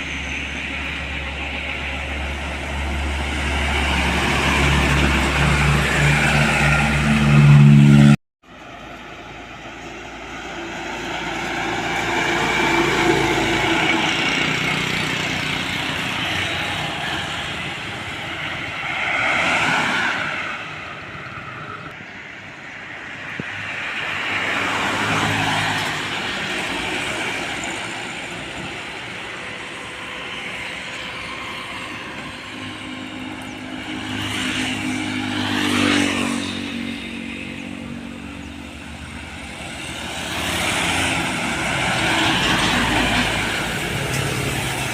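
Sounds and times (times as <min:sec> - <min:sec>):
vehicles passing: 0:00.0 - 0:44.9.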